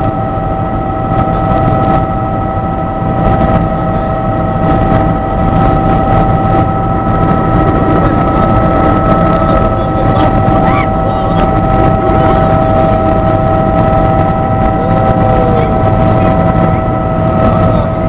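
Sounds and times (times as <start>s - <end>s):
helicopter rotor and engine: 0.0s - 18.0s.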